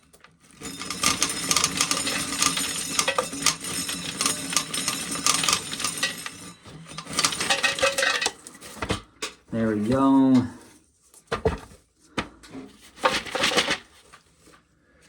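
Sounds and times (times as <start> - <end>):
corn kernels clattering: 0.4 - 8.7
corn sheller hum: 0.4 - 8.7.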